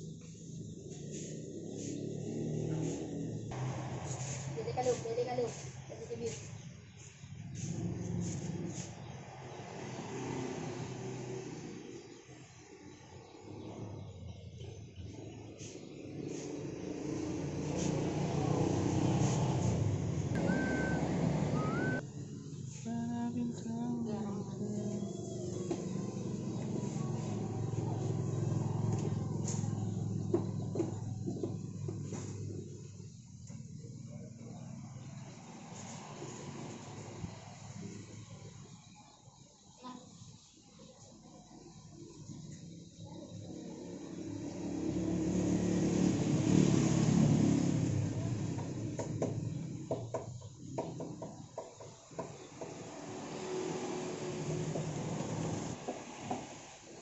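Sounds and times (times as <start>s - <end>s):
motor vehicle passing: 0.2s - 14.3s, 15.0s - 22.7s, 24.6s - 38.6s, 43.3s - 51.4s, 52.5s - 56.8s
engine humming: 16.9s - 22.0s.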